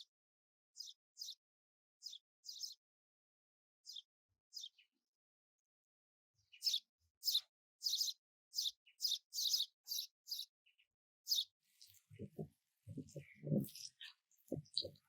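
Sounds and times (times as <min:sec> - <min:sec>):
bird chirping: 0:00.8 - 0:01.4, 0:02.0 - 0:02.8, 0:03.8 - 0:04.9, 0:06.4 - 0:15.0.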